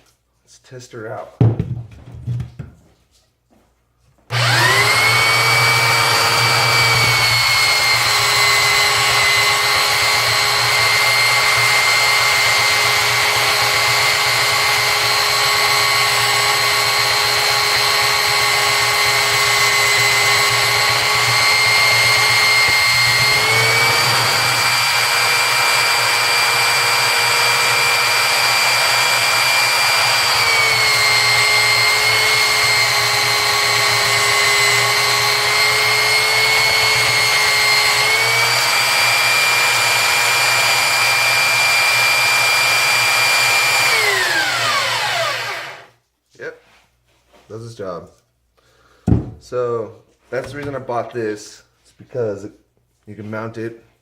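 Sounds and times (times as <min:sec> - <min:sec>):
belt sander whining: 0:04.3 - 0:45.9.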